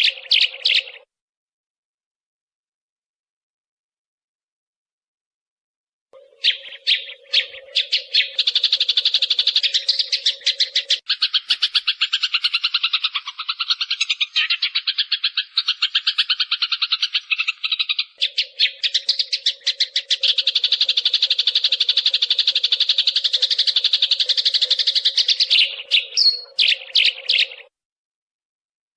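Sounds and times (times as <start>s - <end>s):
fast chatter of sparrow chirps: 0.0s - 1.0s, 6.2s - 27.7s.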